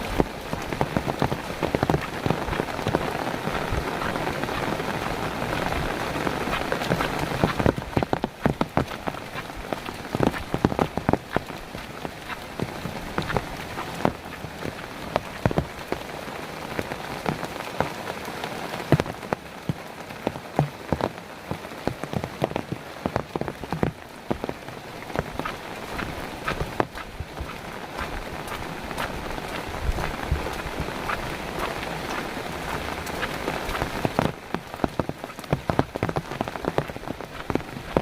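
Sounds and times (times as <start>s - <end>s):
rain falling: 0.0s - 38.0s
raindrop impacts: 0.0s - 38.0s.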